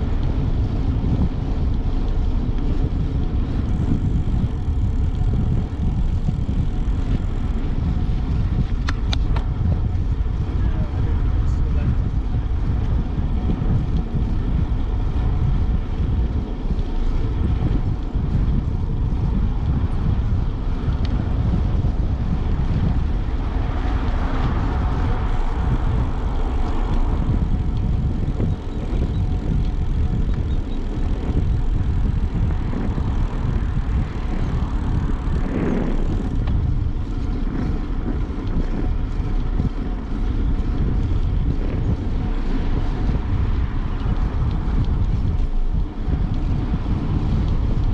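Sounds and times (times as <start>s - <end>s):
wind buffeting microphone: 0.0s - 47.9s.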